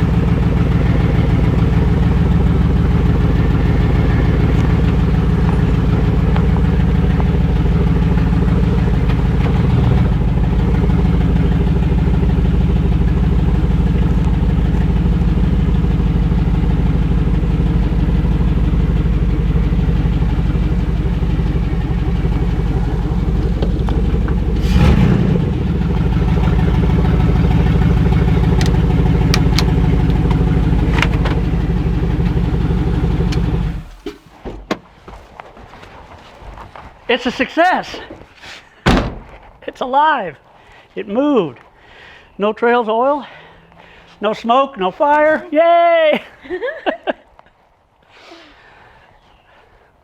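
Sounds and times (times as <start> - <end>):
car engine idling: 0.0 - 34.4, 43.1 - 45.4.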